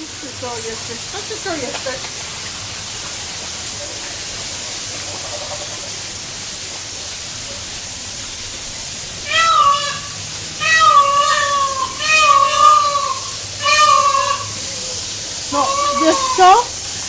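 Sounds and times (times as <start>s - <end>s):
steady hiss: 0.0s - 17.0s
bird wailing calls: 9.2s - 16.7s.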